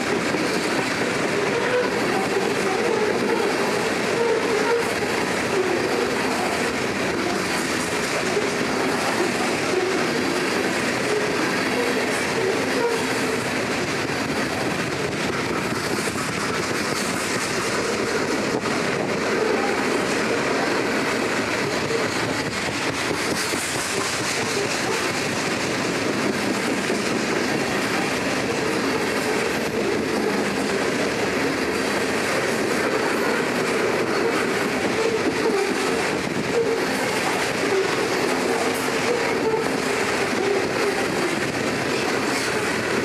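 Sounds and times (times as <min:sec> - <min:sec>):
train cars rumbling past: 0:00.0 - 0:43.0
wheels clicking over rail joints: 0:00.0 - 0:43.0.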